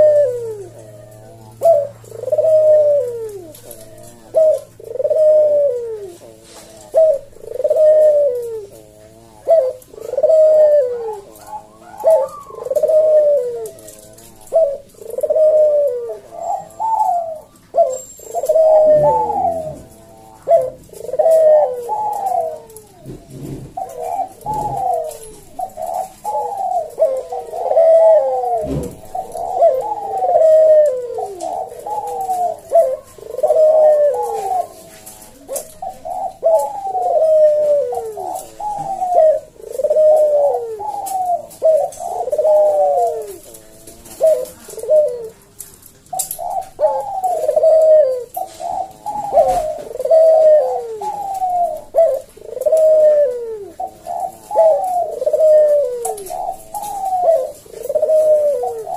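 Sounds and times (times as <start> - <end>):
dove cooing: 0.0 - 58.9.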